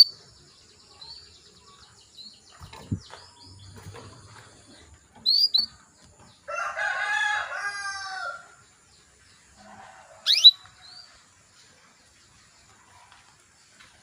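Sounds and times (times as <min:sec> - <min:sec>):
canary high chirps: 0:05.2 - 0:05.8, 0:10.2 - 0:11.1.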